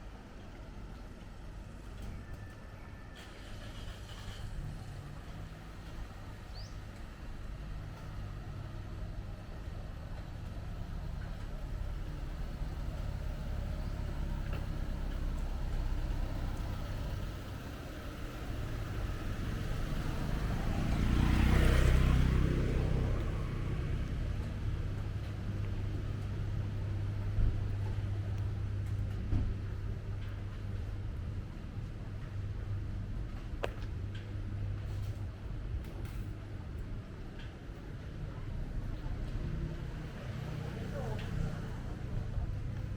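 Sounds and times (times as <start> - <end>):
street traffic: 0.0 - 42.9
vehicle passing close by: 12.0 - 27.3.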